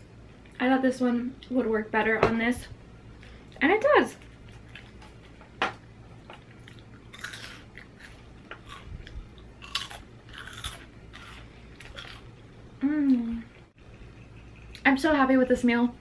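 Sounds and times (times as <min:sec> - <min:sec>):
crunching and chewing chips: 0:06.3 - 0:12.4.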